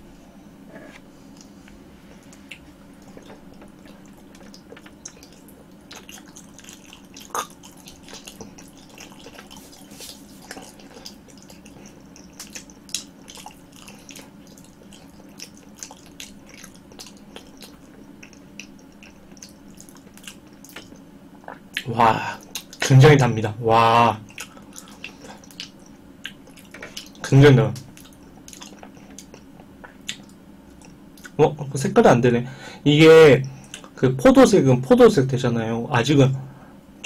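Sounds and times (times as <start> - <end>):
low steady hum: 0.0 - 37.0
wet chewing: 1.4 - 22.9, 24.2 - 31.4.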